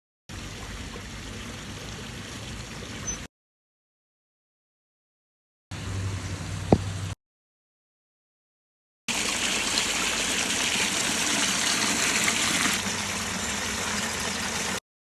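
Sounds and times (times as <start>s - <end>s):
water running over rocks: 9.1s - 14.8s.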